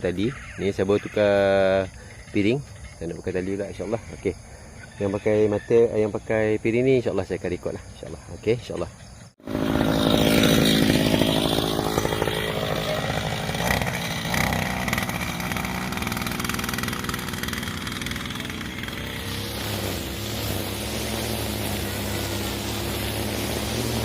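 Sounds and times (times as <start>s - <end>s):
brushcutter cutting grass: 9.4s - 24.0s.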